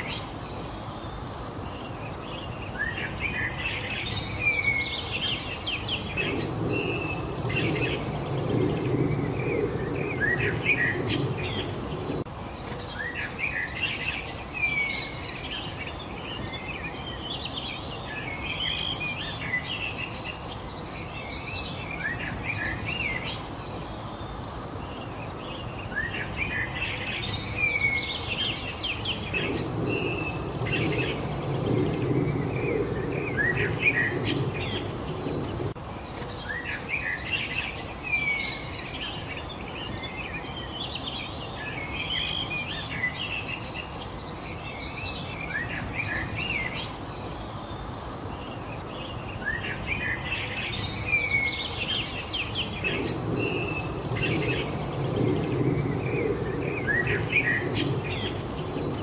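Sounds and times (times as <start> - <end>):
songbirds chirping and singing: 0.0 - 59.0
low rumble: 29.2 - 35.8.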